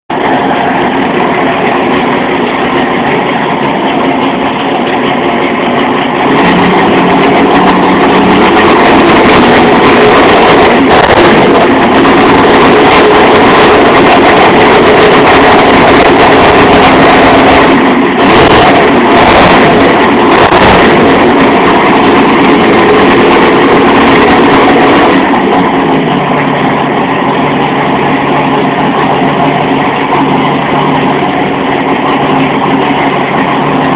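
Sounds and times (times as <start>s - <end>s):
car engine rough rumble: 0.0s - 33.9s.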